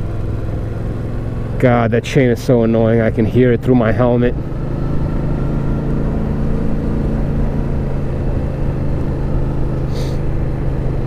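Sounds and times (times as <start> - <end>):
motorcycle engine running: 0.0 - 11.0
brief hiss: 9.9 - 10.2.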